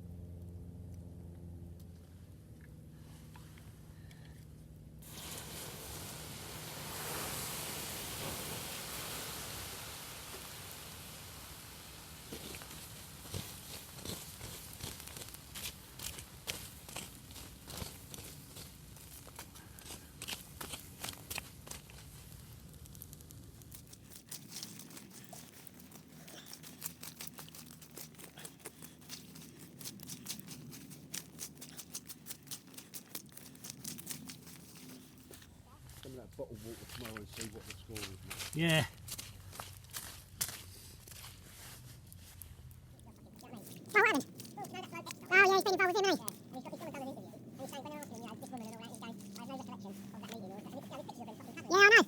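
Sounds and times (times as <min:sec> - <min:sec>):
campfire flames hissing: 0:05.0 - 0:35.5, 0:41.8 - 0:52.0.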